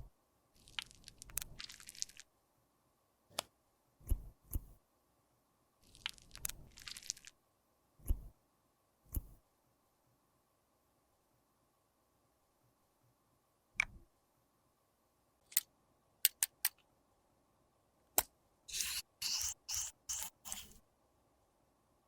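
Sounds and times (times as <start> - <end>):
snipping or scraping strokes: 18.7 - 20.8.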